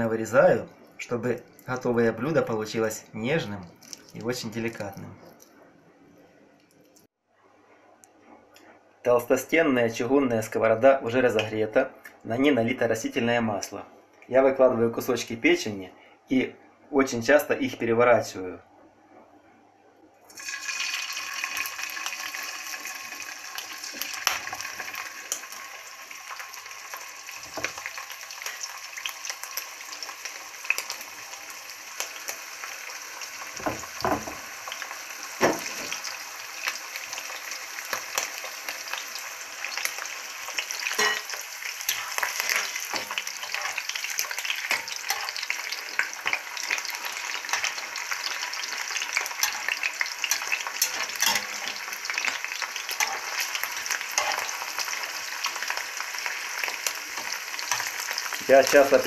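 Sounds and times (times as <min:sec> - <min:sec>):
liver sizzling in frying pan: 0:20.3 - 0:59.0.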